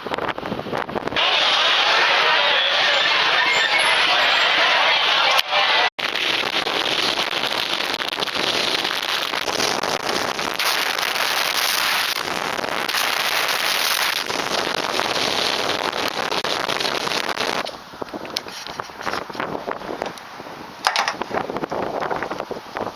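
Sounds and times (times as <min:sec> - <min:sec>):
wind buffeting microphone: 0:00.0 - 0:01.2, 0:06.0 - 0:22.9.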